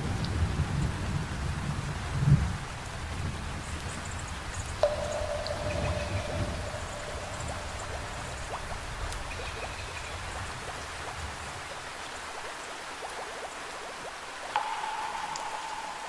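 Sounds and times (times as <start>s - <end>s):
water drips: 3.8s - 16.0s
held instrument note: 4.8s - 9.3s, 14.6s - 16.0s
low thunder rumble: 4.8s - 10.6s
heavy rain: 4.8s - 12.3s.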